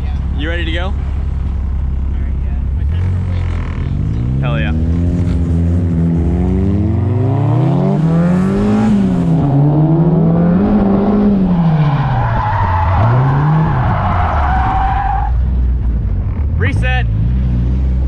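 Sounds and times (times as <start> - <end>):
car engine revving: 0.0 - 18.0
tyres squealing: 11.7 - 15.4.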